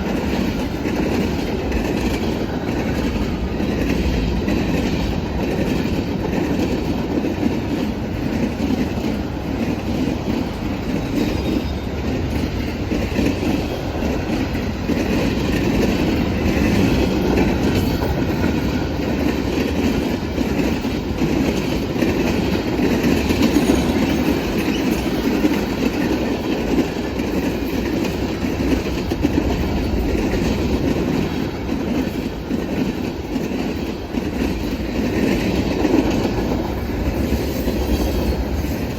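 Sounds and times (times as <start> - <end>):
freight train wheels rumbling: 0.0 - 38.9
train wheel squeal: 8.7 - 38.9.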